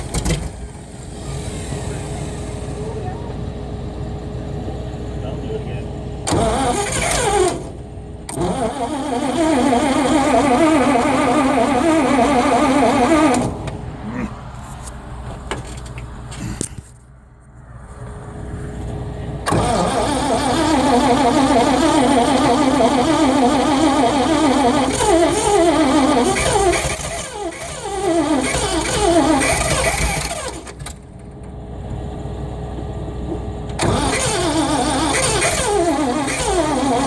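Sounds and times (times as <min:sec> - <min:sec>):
engine cranked by starter: 0:00.0 - 0:03.2, 0:05.2 - 0:14.0, 0:19.3 - 0:32.0, 0:33.3 - 0:37.0.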